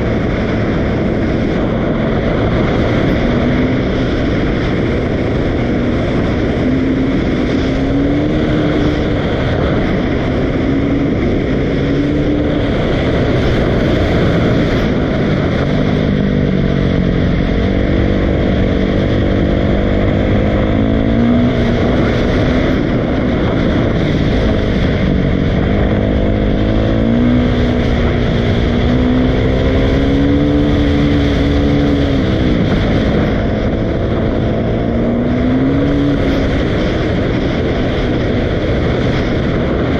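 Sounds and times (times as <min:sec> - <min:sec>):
dirt bike engine revving: 0:00.0 - 0:39.8.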